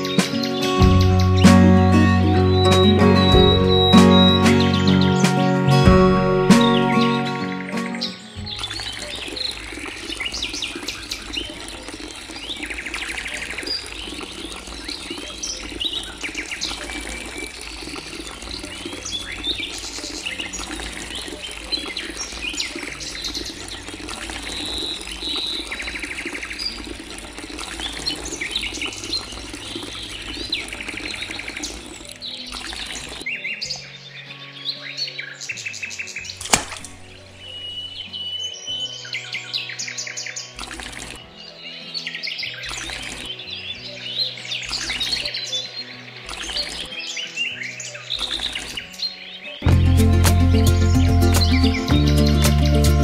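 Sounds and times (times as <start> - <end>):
small birds chirping: 0.0 - 5.9, 6.5 - 53.0
running water rushing: 0.0 - 33.3, 40.5 - 41.3, 42.6 - 43.4
faint music: 0.0 - 53.0.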